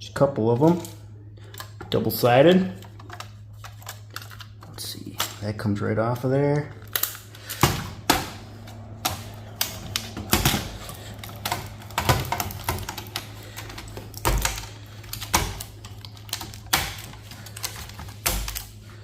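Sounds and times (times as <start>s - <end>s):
steady low hum: 0.0s - 19.0s
circuit board parts clacking: 0.6s - 18.8s.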